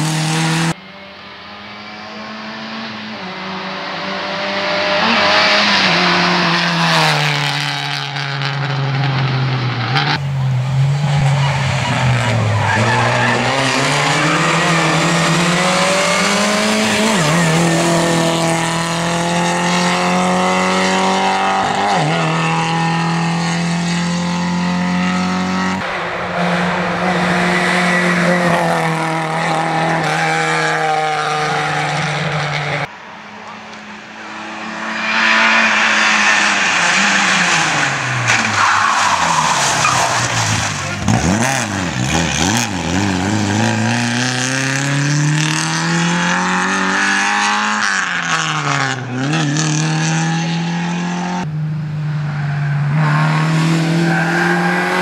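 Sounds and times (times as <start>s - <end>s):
rally car engine at high revs: 0.0s - 55.0s
tyre and road noise: 0.0s - 55.0s.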